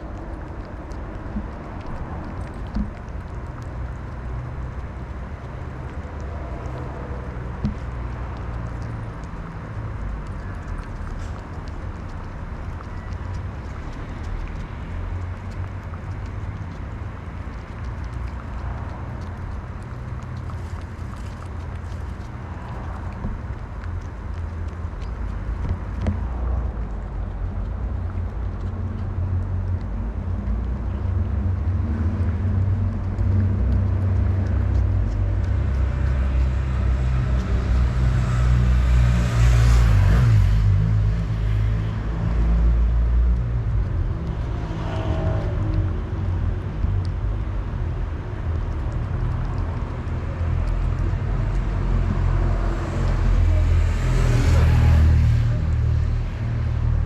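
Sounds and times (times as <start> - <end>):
car rumbling: 0.0 - 57.0.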